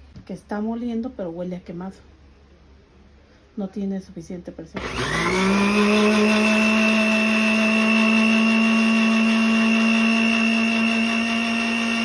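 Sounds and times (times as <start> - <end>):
blender motor humming and whining: 4.8 - 12.0.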